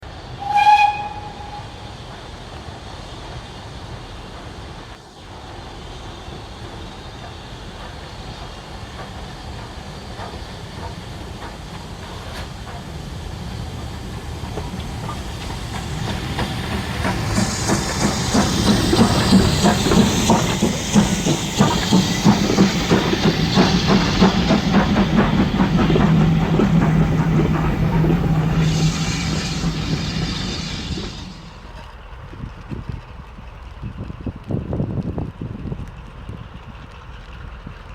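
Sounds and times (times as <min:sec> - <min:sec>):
train running on rails: 0:00.0 - 0:37.9
train horn toot: 0:00.4 - 0:01.9
low engine note: 0:14.3 - 0:32.0.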